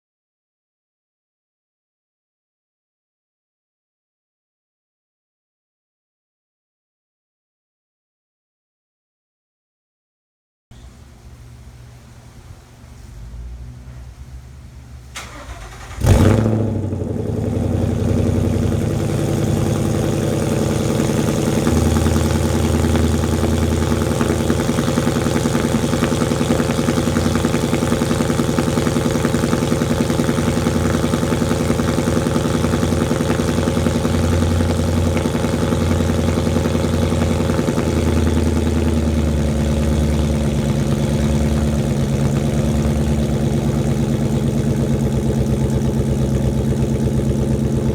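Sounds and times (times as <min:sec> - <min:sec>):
car engine cold start and idle: 0:10.8 - 0:47.9.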